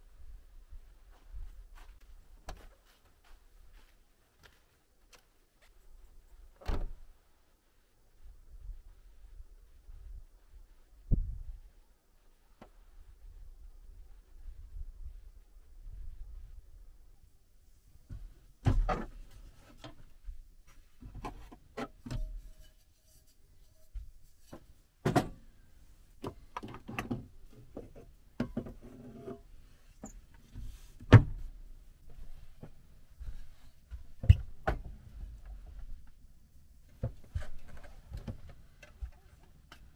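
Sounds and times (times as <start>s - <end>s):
objects knocking and thudding: 18.1s - 20.1s, 24.0s - 25.4s, 26.2s - 29.4s.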